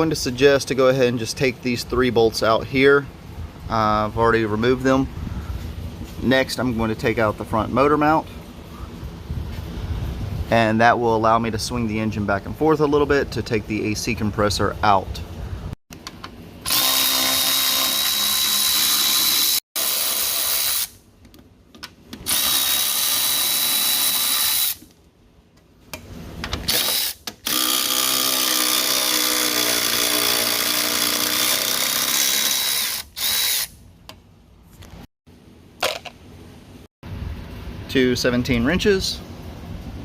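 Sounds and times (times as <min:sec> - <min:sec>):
cordless power tool whining: 0:16.6 - 0:20.9, 0:22.2 - 0:24.8, 0:26.6 - 0:33.7.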